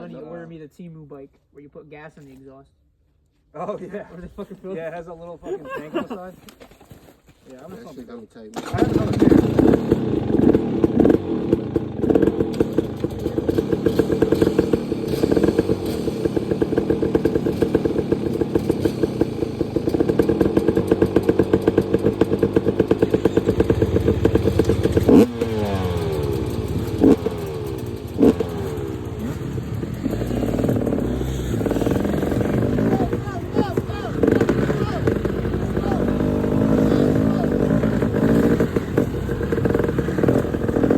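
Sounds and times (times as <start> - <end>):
dirt bike engine running: 8.6 - 40.9.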